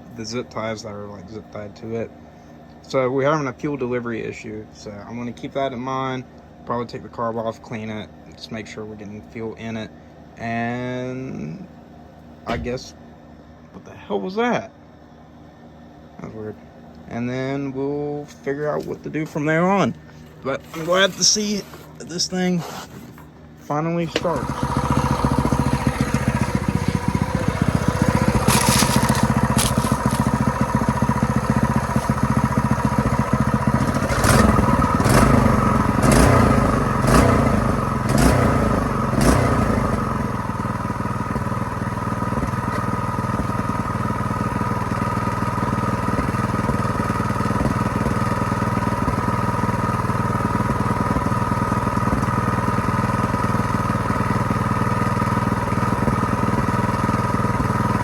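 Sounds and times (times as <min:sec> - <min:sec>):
engine sharp cracks: 0:12.5 - 0:12.9, 0:24.1 - 0:40.6
small engine running: 0:24.1 - 0:58.0.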